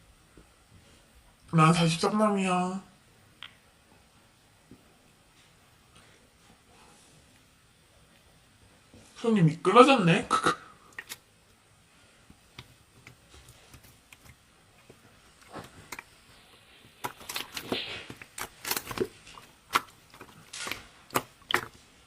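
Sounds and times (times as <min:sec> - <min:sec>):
soft rustle: 0:11.8 - 0:22.0.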